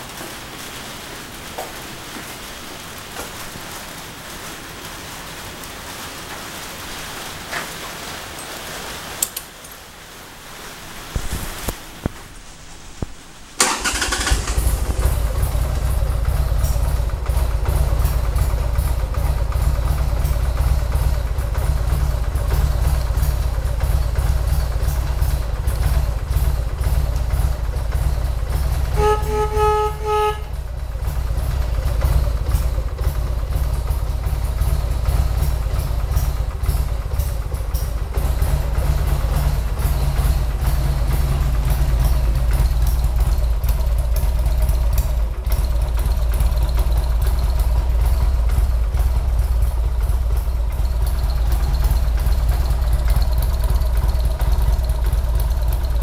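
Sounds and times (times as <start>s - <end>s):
motorcycle engine idling: 13.6s - 56.0s.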